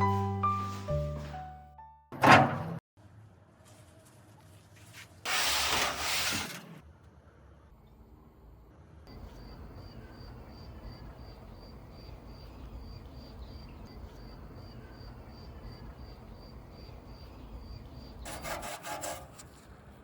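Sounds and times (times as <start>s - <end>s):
cricket chirping: 9.1s - 18.3s.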